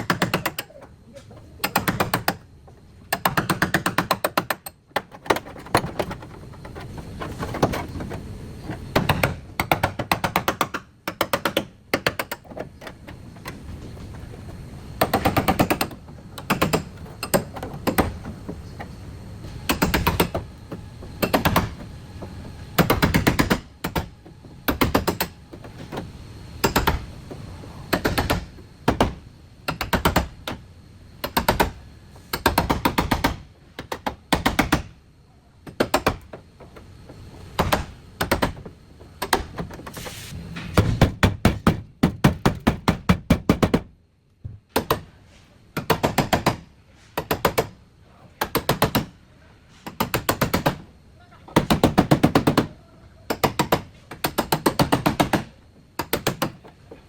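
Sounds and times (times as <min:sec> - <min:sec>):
hammer striking steel panels: 0:40.5 - 0:43.9.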